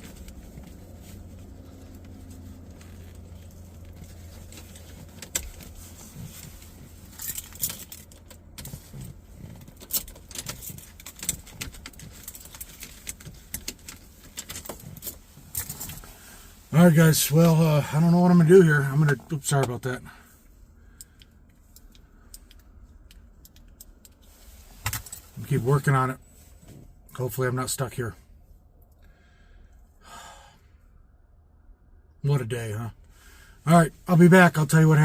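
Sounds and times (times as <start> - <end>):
keys jangling in ignition: 0.0 - 16.2
low steady hum: 0.0 - 35.0.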